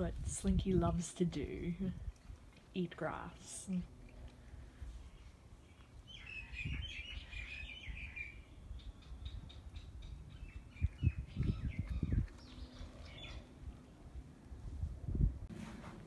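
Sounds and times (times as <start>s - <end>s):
birds chirping: 3.7s - 14.0s.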